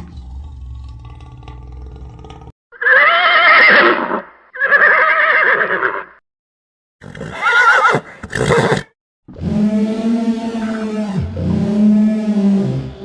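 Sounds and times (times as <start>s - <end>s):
horse whinnying: 2.8s - 6.2s, 7.0s - 8.9s.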